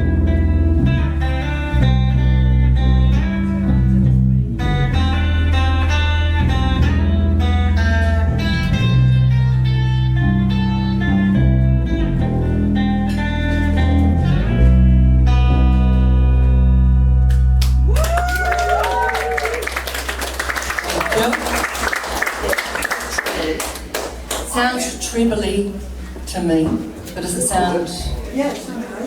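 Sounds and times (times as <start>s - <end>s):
electric guitar: 0.0s - 21.4s
bass line: 0.0s - 27.0s.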